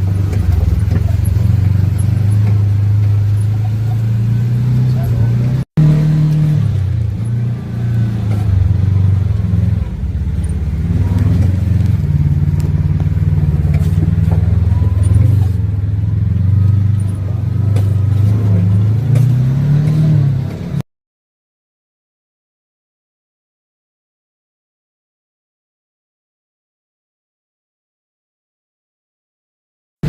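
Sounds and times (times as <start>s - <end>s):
off-road vehicle engine: 0.0s - 20.8s
light clatter: 16.7s - 20.6s.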